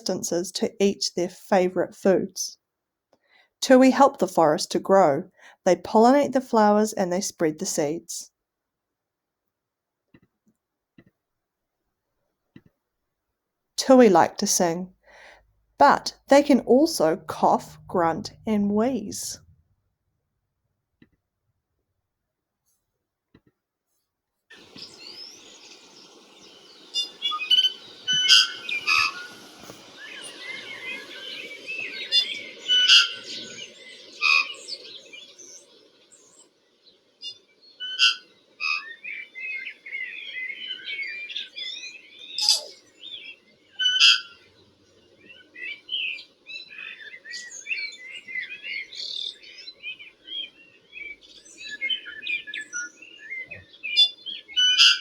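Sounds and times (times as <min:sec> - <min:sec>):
tui singing: 0:15.8 - 0:19.4, 0:24.6 - 0:36.4, 0:37.8 - 0:54.6
steady low hum: 0:15.9 - 0:19.6.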